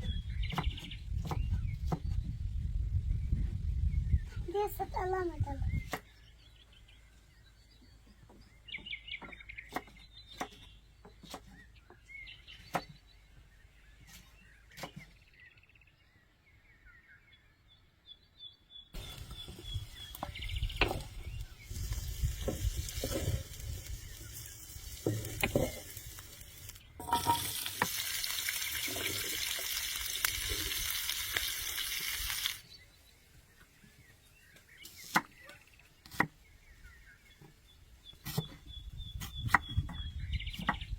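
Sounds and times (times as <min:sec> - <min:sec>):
food frying in hot oil: 0:21.6 - 0:32.6.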